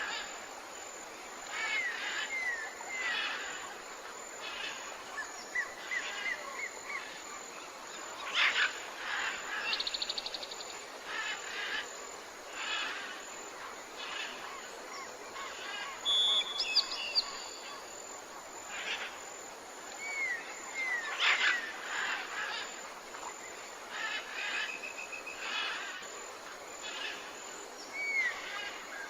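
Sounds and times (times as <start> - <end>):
steady background hiss: 0.0 - 29.0
whistled bird notes: 16.0 - 17.4.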